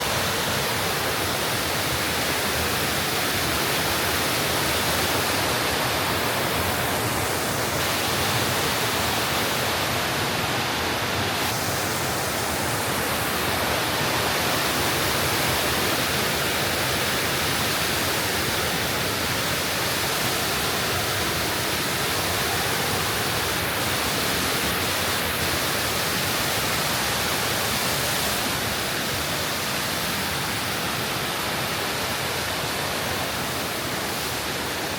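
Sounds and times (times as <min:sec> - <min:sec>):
rushing stream water: 0:00.0 - 0:34.9.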